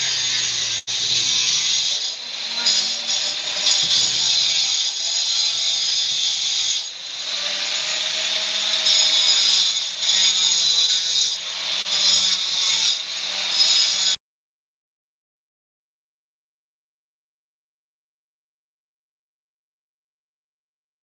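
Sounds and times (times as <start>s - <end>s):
power tool running: 0.0s - 14.2s.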